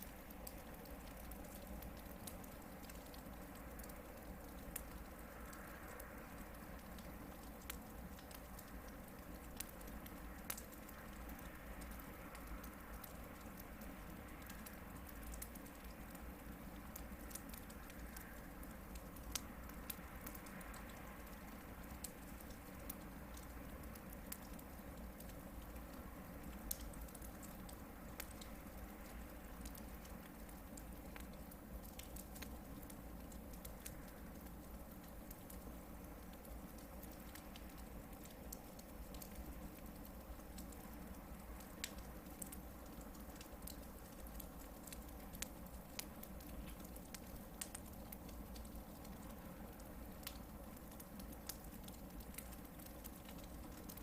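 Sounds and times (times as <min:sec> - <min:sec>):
campfire crackling and popping: 0:00.0 - 0:54.0
low rumble of fire: 0:00.0 - 0:54.0.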